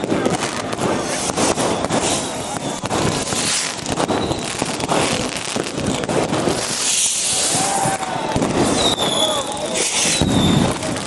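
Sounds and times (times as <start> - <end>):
fireworks cracking and crackling: 0.0 - 11.0
fireworks hissing shower: 0.0 - 11.0.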